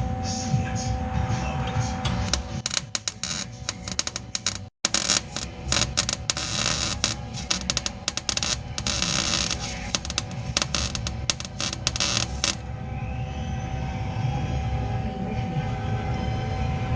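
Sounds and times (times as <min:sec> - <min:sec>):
welder crackling: 0:02.0 - 0:12.6.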